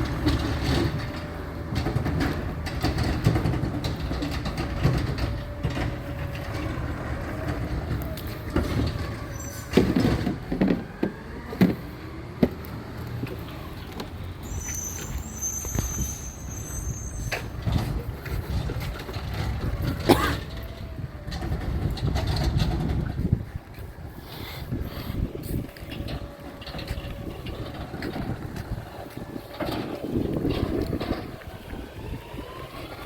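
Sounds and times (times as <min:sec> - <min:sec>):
garbage truck engine rumble: 0:00.0 - 0:33.0
high-pitched squeal: 0:14.4 - 0:17.8.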